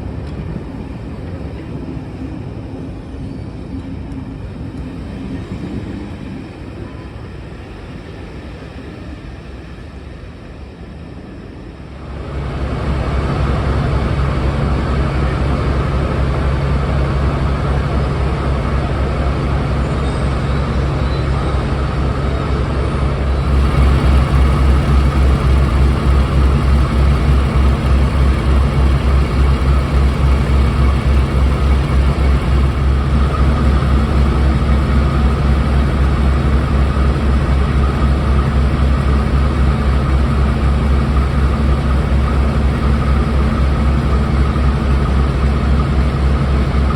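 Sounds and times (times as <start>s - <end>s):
diesel engines throbbing: 12.0s - 46.9s.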